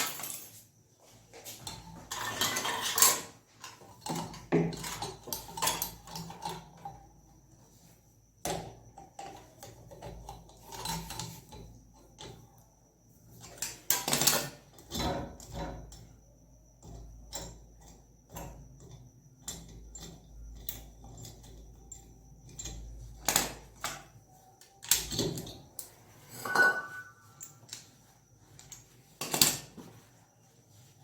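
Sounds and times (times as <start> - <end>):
tools and metal parts clattering: 0.0 - 7.1, 8.6 - 12.5, 13.3 - 16.1, 18.8 - 30.1.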